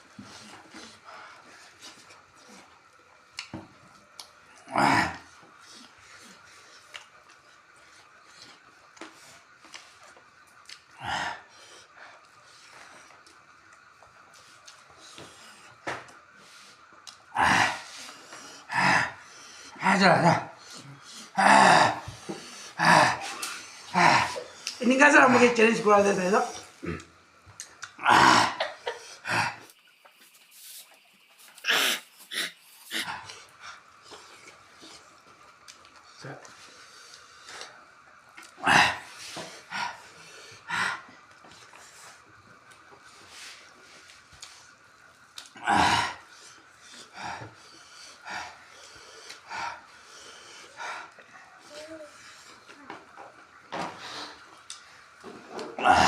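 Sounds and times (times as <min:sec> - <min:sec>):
quiet eating sounds: 0:00.0 - 0:56.0
person making breathy vocal bursts: 0:18.6 - 0:24.6.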